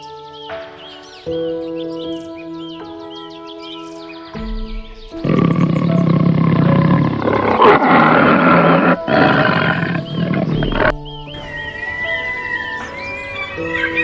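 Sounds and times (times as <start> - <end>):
soft background music: 0.0 - 14.0
loud rough animal call: 5.2 - 11.0.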